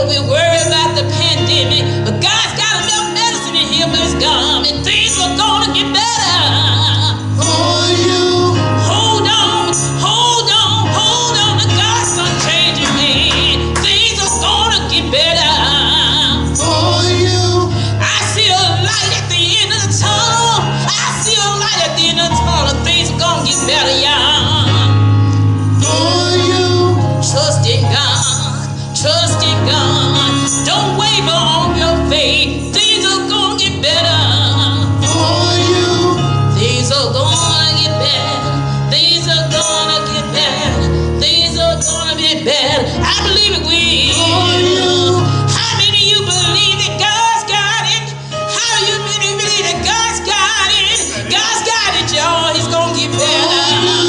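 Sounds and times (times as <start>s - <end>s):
gospel singing with instruments: 0.0s - 54.0s.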